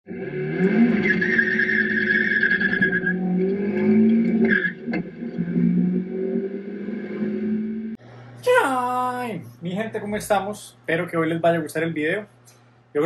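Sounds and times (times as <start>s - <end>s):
car engine accelerating: 0.1s - 8.0s.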